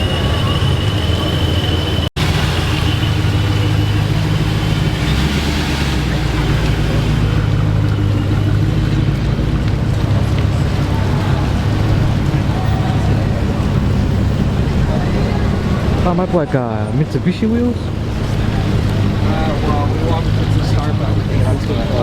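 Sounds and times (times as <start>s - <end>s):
car engine running at low revs: 0.0s - 22.0s.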